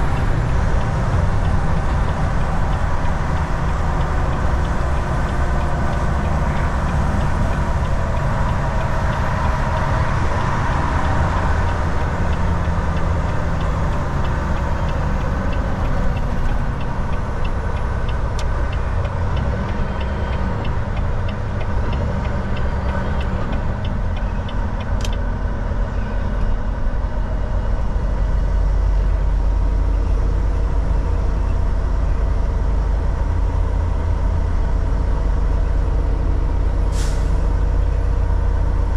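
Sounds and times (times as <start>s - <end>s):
regular ticking: 0.0s - 23.3s
truck engine and road noise: 0.0s - 38.9s.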